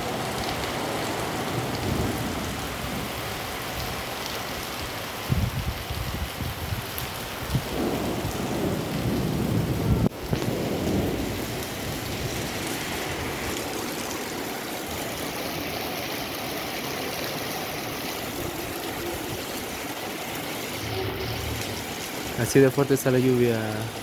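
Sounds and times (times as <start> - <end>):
heavy rain pouring: 0.0 - 24.0
low rumble: 20.8 - 22.4.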